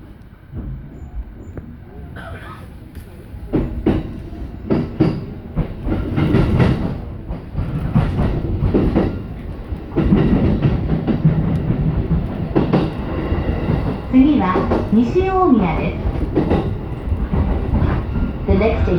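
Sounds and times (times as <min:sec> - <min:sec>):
electric train rumbling: 0:00.0 - 0:18.9
wheels knocking over rail joints: 0:03.5 - 0:18.3.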